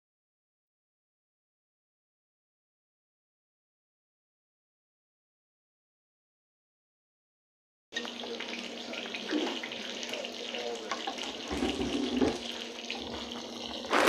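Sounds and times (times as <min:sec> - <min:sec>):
tap water running into sink: 0:08.0 - 0:14.0.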